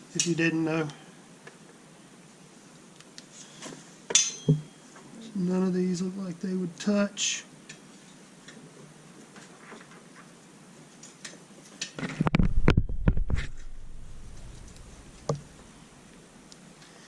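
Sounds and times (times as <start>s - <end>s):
loud knocks and thumps: 12.1s - 13.8s.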